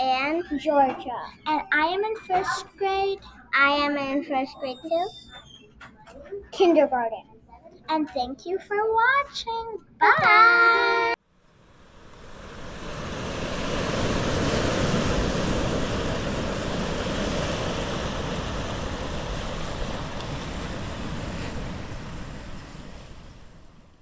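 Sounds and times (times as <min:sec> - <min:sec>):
ocean waves rushing: 0:10.9 - 0:24.0.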